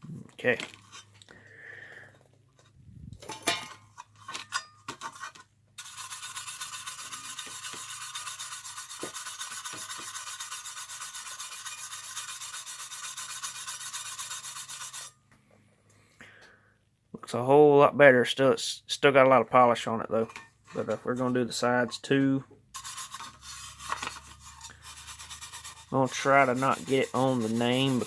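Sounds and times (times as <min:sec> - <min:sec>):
cloth rubbing on metal: 0:05.1 - 0:15.2, 0:22.8 - 0:28.0.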